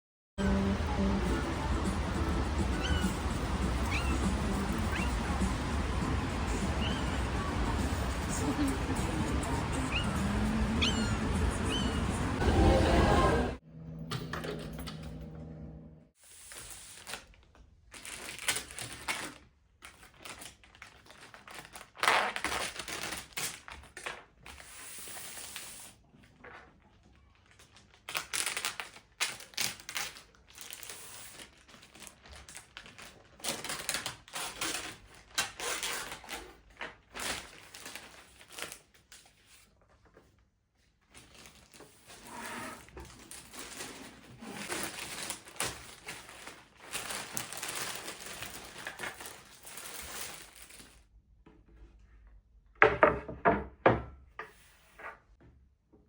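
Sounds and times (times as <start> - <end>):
packaging rustling and crinkling: 16.4 - 24.7, 26.4 - 51.0.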